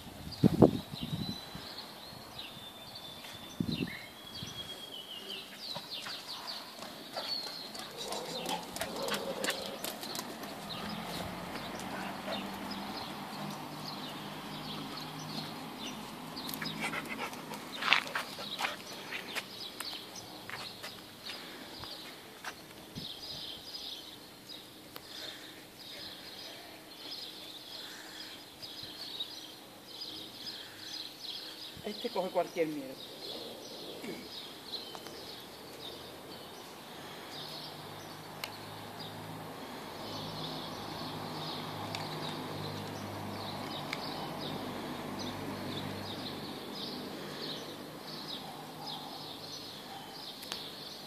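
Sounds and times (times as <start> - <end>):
faint outdoor background noise: 0.0 - 51.0
small birds chirping: 0.0 - 51.0.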